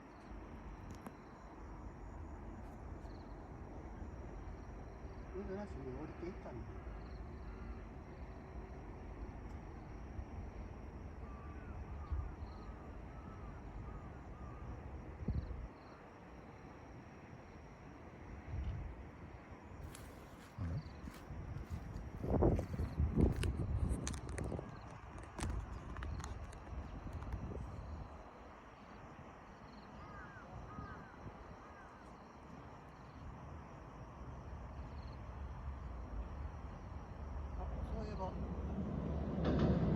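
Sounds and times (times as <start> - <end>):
wind rumble on microphone: 10.3 - 15.7, 18.4 - 19.1, 19.8 - 28.3, 35.6 - 39.9
low outdoor rumble: 17.9 - 39.9
bird calling: 29.8 - 32.0
thump: 39.3 - 39.9.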